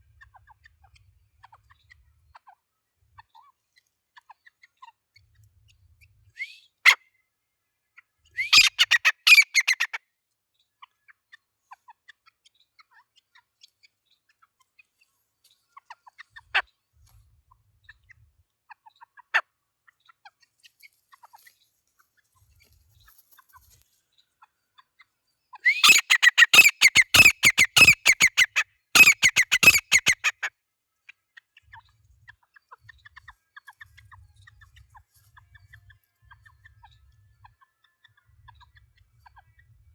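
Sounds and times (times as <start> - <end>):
francolin calling: 8.4 - 9.9, 25.6 - 30.3.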